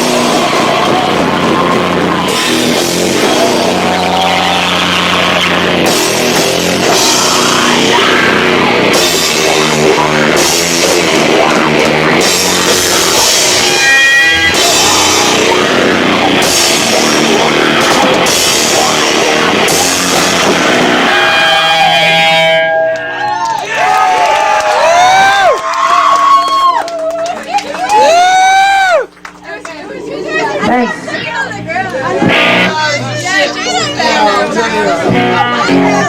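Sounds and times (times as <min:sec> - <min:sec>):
drum kit with crashing cymbals: 0:00.0 - 0:22.6
distorted electric guitars: 0:00.0 - 0:23.4, 0:30.5 - 0:36.0
bass guitar: 0:00.0 - 0:23.6, 0:30.3 - 0:36.0.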